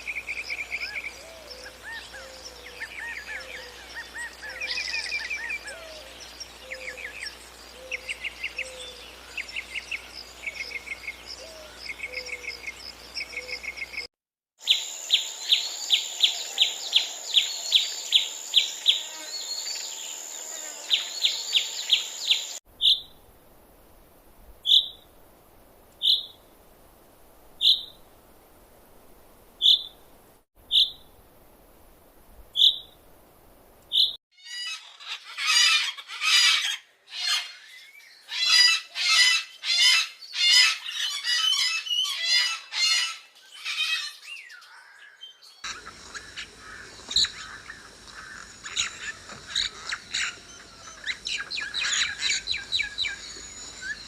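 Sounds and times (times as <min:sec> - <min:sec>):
birds chirping: 0:00.0 - 0:23.1, 0:26.0 - 0:26.4, 0:43.5 - 0:54.0
dense bird chattering: 0:45.6 - 0:54.0.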